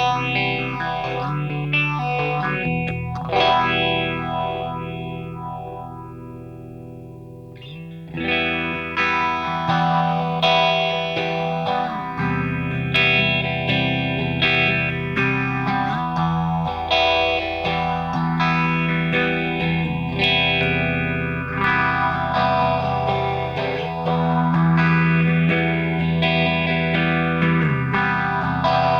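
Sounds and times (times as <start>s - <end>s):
electric guitar chords with phaser: 0.0s - 28.9s.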